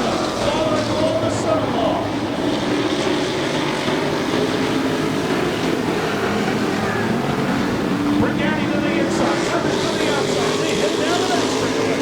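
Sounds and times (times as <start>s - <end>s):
race truck engines running hard: 0.0s - 12.0s.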